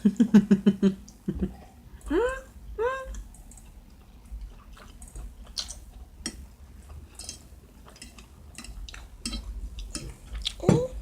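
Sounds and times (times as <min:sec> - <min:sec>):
chewing and mouth sounds: 0:03.1 - 0:11.0.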